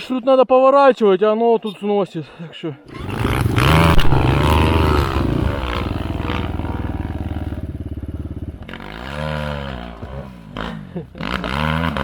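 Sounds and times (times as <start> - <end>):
dirt bike engine revving: 2.9 - 12.0.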